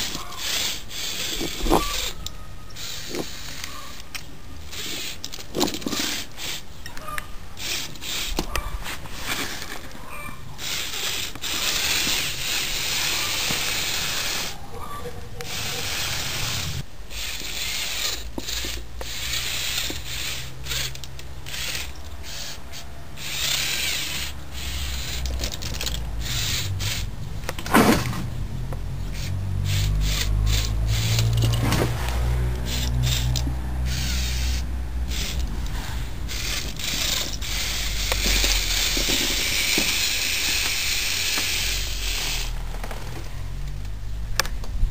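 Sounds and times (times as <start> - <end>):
toy truck motors whirring: 0.0 - 44.9.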